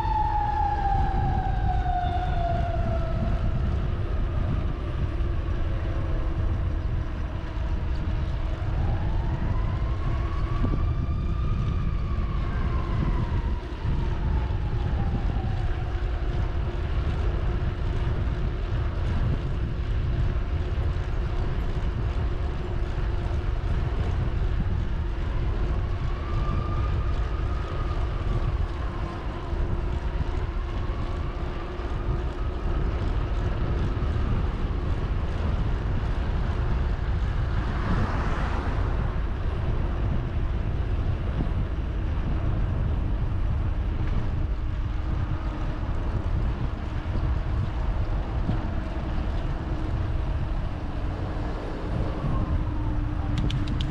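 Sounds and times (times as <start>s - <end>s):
distant siren wailing: 0.0s - 53.9s
wind rumbling on microphone: 0.0s - 53.9s.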